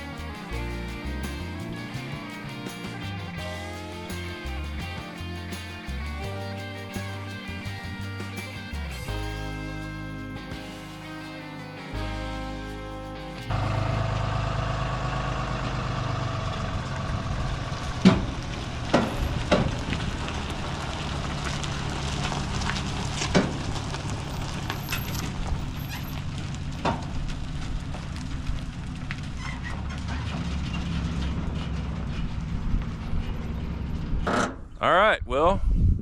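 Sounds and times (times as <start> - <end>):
vehicle engine droning: 0.0 - 34.8
sharp knocks and clanks: 17.9 - 20.4, 29.6 - 34.7.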